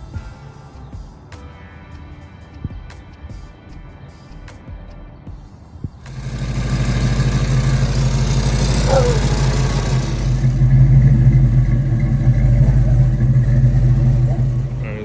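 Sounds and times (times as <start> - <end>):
car engine droning: 6.0 - 15.0
hiss: 6.0 - 15.0.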